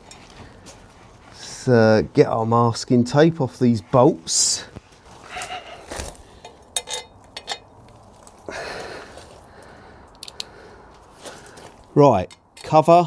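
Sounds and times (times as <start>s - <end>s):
tape peeling: 5.0s - 6.4s
small metal parts clinking: 6.4s - 7.7s.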